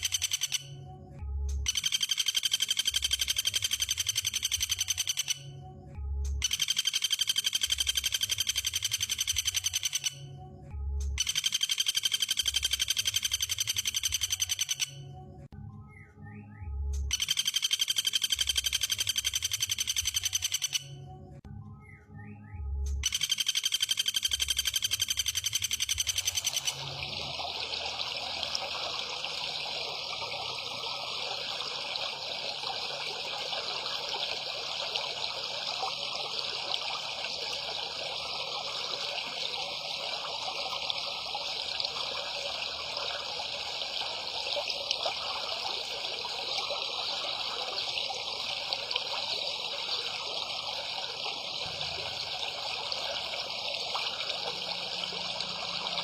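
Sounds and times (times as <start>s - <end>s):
running water rushing: 26.0s - 56.0s.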